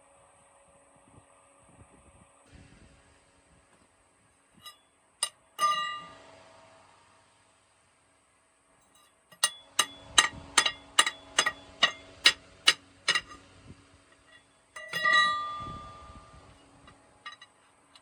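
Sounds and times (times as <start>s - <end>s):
loud ringing metal clang: 5.6s - 6.2s, 9.3s - 13.4s, 14.2s - 16.6s.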